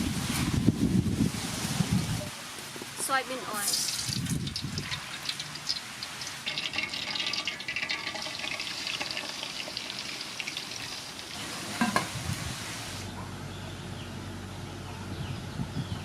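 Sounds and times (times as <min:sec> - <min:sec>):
oil pouring into a pan: 0:03.6 - 0:12.2.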